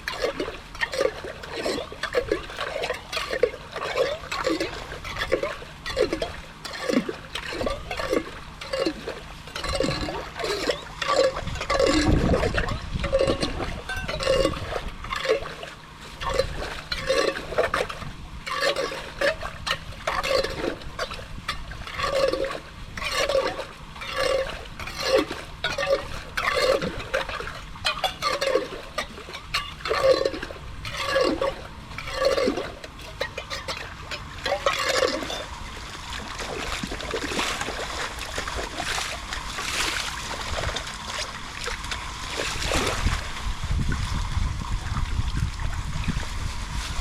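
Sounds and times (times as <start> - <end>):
draining water gurgling: 0.0 - 46.8.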